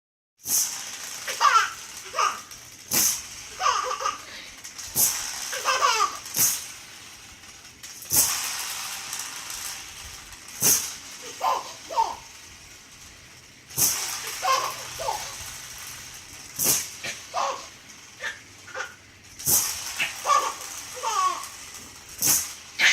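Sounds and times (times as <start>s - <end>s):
toy rattle shaking: 0.4s - 22.9s
baby laughing and giggling: 1.3s - 2.5s, 3.5s - 4.5s, 5.5s - 6.2s, 11.2s - 12.3s, 14.2s - 15.4s, 17.0s - 19.0s, 20.0s - 21.5s.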